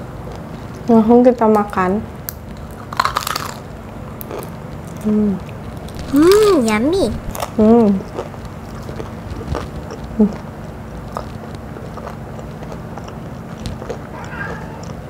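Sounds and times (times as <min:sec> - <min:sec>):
person chewing crunchy food: 0:02.6 - 0:15.0
steady low hum: 0:03.6 - 0:15.0.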